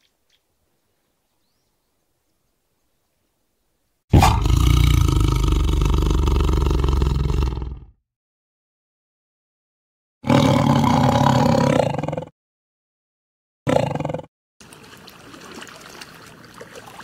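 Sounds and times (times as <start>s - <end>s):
tiger roaring: 4.1s - 7.9s, 10.2s - 12.3s, 13.7s - 14.3s.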